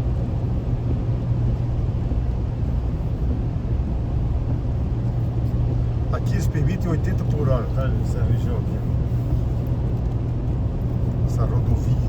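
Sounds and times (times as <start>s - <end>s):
car engine and road noise: 0.0s - 12.0s
constant low hum: 0.0s - 12.0s.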